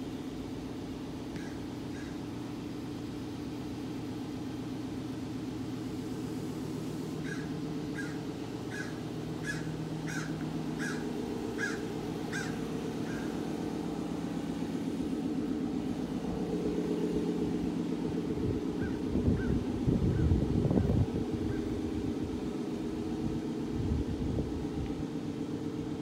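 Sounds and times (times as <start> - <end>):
low mechanical hum: 0.0 - 26.0
bird calling: 1.3 - 2.4, 7.2 - 14.8, 18.7 - 21.8.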